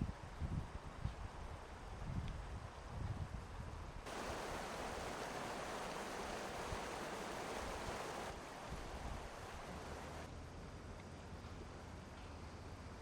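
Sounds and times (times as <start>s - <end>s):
rushing river water: 4.1s - 10.3s.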